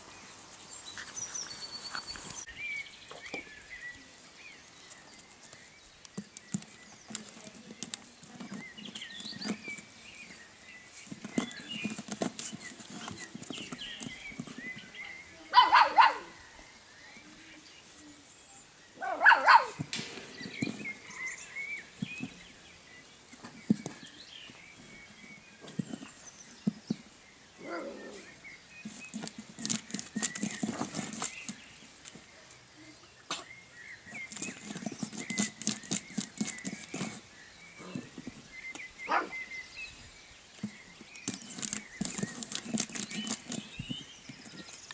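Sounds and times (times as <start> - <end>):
light pattering and tapping: 4.7 - 15.0, 19.8 - 27.1, 28.8 - 32.3, 34.1 - 37.2, 40.6 - 44.9
small dog barking: 15.5 - 16.4, 19.0 - 19.8, 27.6 - 28.2, 39.1 - 39.4
puppy yelp: 19.0 - 19.8.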